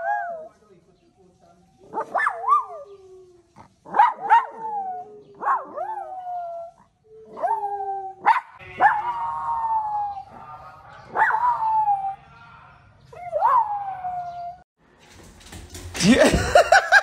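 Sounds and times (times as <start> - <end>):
small dogs howling: 1.8 - 10.4, 11.1 - 12.2, 13.1 - 14.6.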